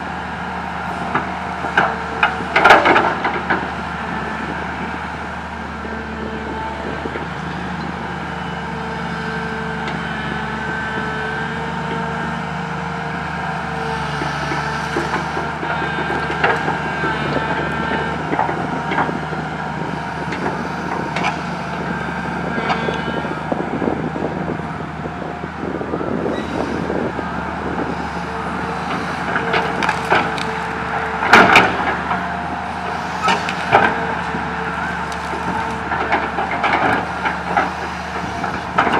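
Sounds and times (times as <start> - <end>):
excavator diesel engine running: 0.0 - 38.9
branches cracking and clattering: 28.9 - 32.2, 33.2 - 37.8.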